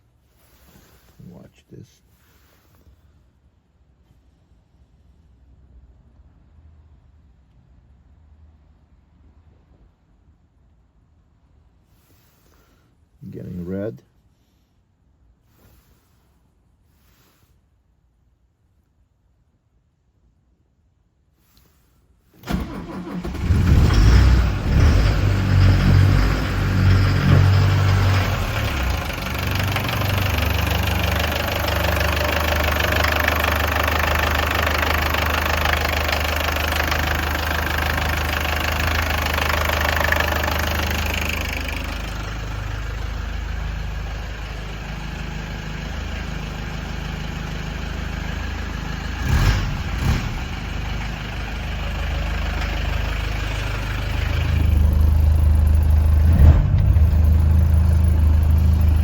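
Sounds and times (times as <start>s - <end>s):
diesel engine idling with knock: 22.6s - 59.0s.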